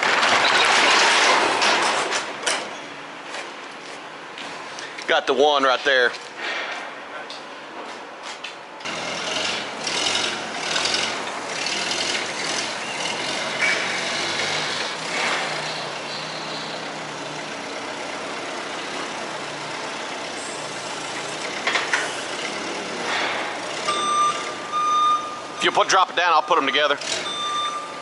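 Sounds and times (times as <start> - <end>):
freight scraping and rattling: 0.0 - 3.6, 8.9 - 17.3
forklift engine running: 8.8 - 25.8, 26.9 - 28.0.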